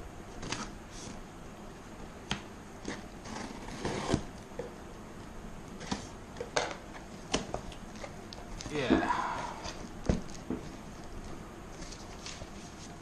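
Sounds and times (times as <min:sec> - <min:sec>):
packaging rustling: 0:09.6 - 0:13.0.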